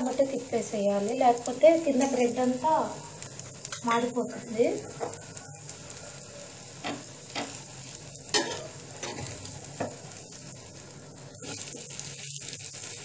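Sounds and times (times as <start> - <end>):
food sizzling in oil: 0.0 - 13.0
utensil striking pan: 8.2 - 10.0.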